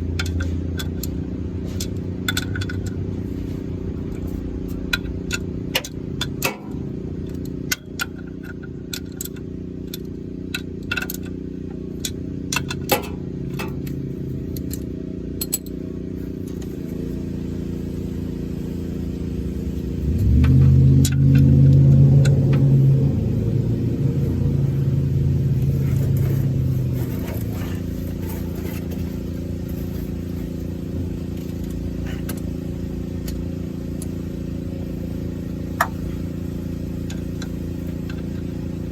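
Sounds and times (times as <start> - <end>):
steady low hum: 0.0 - 38.9
vehicle engine: 0.0 - 38.9.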